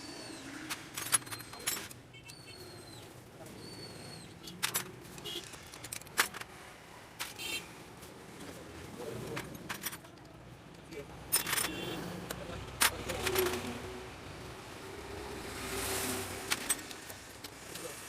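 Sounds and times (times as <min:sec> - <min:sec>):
metal tools clinking: 0:00.1 - 0:02.6, 0:04.1 - 0:06.5, 0:09.3 - 0:10.4, 0:11.3 - 0:12.0, 0:16.4 - 0:17.8.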